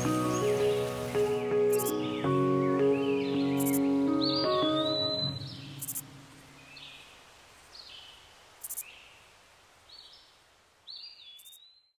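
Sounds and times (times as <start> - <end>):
music: 0.0 - 6.2
bird chirps: 1.7 - 6.0.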